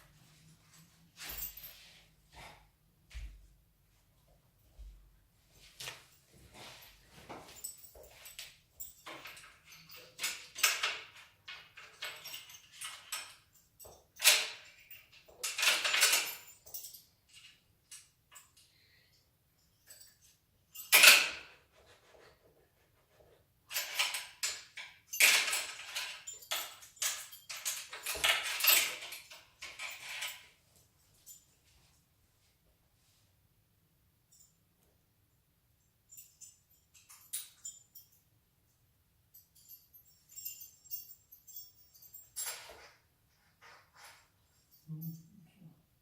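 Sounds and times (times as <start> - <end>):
tools clicking and clinking: 7.5 - 18.7, 19.7 - 22.0, 23.2 - 30.5, 36.1 - 38.2, 39.4 - 45.3.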